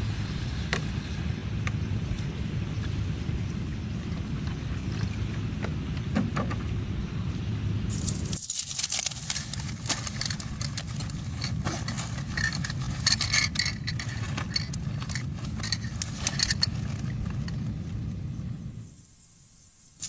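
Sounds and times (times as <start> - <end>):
low wind rumble: 0.0 - 19.3
small hard objects clinking: 7.9 - 18.1.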